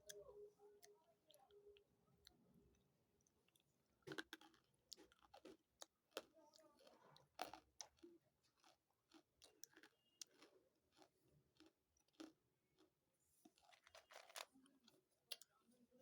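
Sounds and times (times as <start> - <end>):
chewing crunchy food: 0.0 - 15.6.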